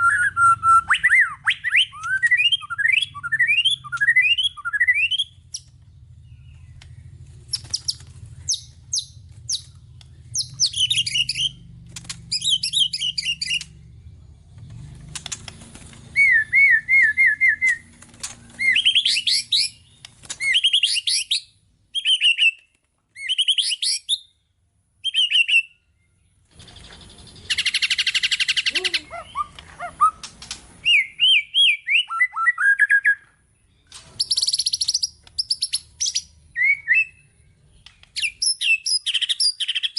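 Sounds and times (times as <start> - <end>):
bird singing whistled phrases: 0.0 - 5.6, 10.3 - 11.6, 12.3 - 13.7, 16.2 - 17.8, 18.6 - 22.6, 23.2 - 24.3, 25.0 - 25.9, 27.4 - 33.4, 34.2 - 37.3, 38.2 - 39.9.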